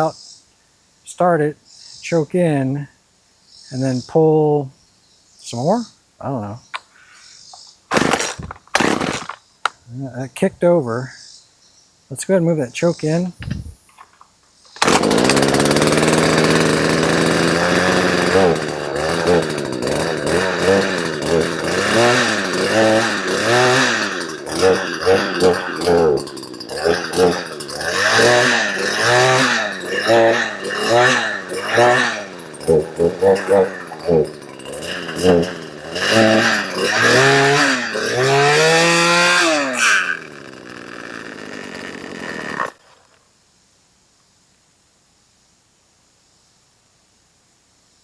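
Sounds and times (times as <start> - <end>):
chainsaw engine revving: 7.9 - 9.4, 14.8 - 43.2.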